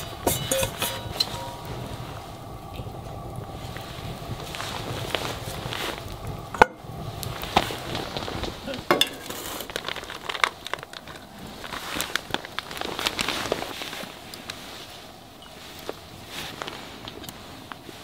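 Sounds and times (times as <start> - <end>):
low background rumble: 0.0 - 18.0
sharp clicks and crinkles: 7.5 - 14.6.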